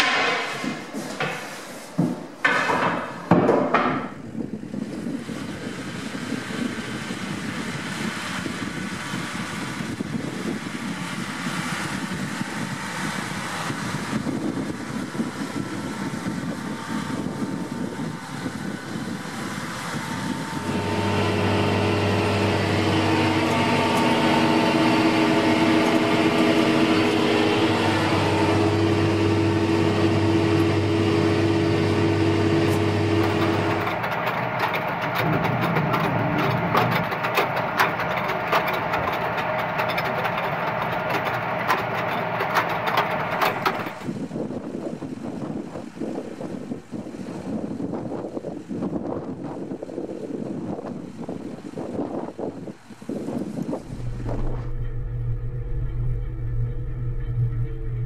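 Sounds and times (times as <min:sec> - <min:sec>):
tractor engine running: 0:19.9 - 0:44.1, 0:53.8 - 0:58.0
planter mechanism clicking and rattling: 0:20.6 - 0:44.1, 0:53.8 - 0:58.0.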